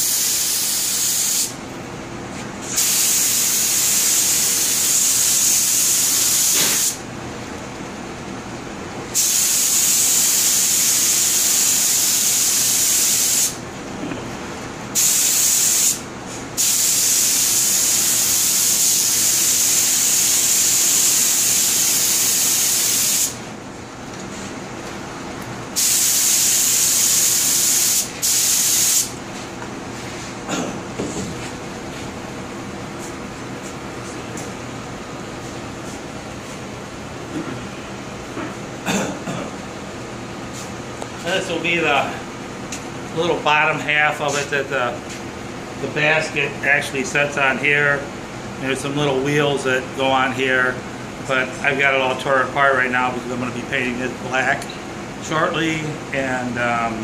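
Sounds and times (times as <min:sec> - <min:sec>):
paint sprayer hissing: 0:00.0 - 0:01.6, 0:02.6 - 0:07.0, 0:09.2 - 0:13.6, 0:15.0 - 0:16.0, 0:16.6 - 0:23.4, 0:25.8 - 0:29.2.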